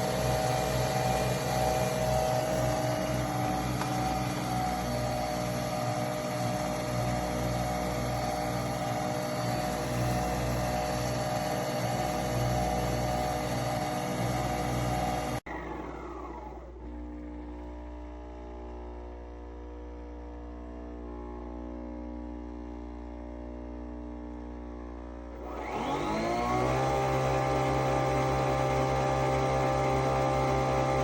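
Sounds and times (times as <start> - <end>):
coffee machine whirring: 0.0 - 17.6, 25.3 - 31.0
motor winding down whine: 0.0 - 17.8, 25.3 - 31.0.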